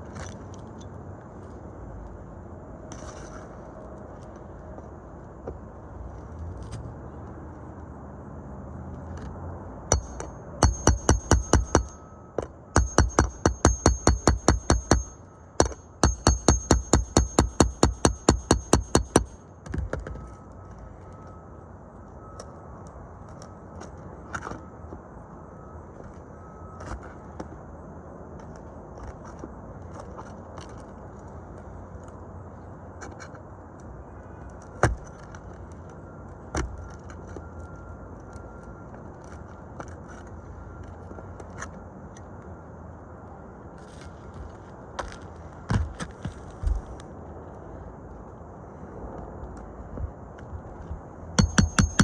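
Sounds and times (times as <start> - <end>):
sharp knocks: 9.9 - 12.0, 12.8 - 20.0, 51.4 - 52.0
ringing hammer blows: 9.9 - 19.4, 51.4 - 52.0
shingles scraping and crackling: 43.8 - 47.1.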